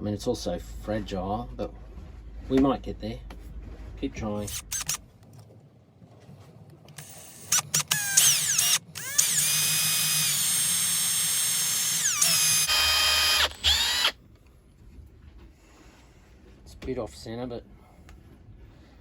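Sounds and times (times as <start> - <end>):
electric drill drilling plastic: 4.5 - 5.0, 7.0 - 14.2.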